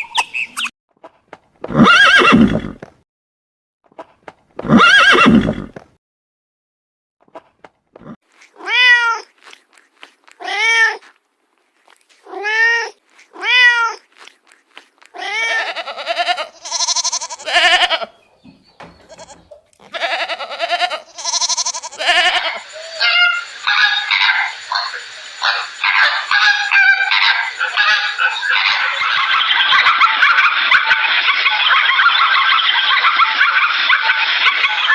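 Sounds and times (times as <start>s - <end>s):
cat meowing: 8.6s - 9.3s, 10.4s - 11.1s, 12.2s - 14.0s, 15.2s - 18.0s
goat or sheep bleating: 15.1s - 18.2s, 19.0s - 22.6s.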